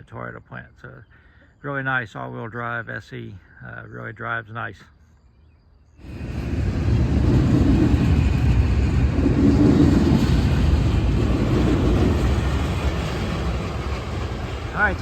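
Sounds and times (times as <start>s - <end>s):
diesel locomotives rumbling: 6.0s - 15.0s.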